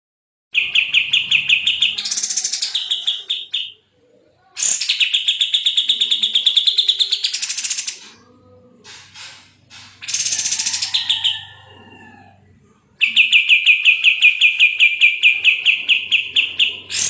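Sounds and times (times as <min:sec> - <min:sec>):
bird singing rapid high chirps: 0:00.5 - 0:03.8, 0:04.6 - 0:08.0, 0:10.0 - 0:11.6, 0:13.0 - 0:17.0.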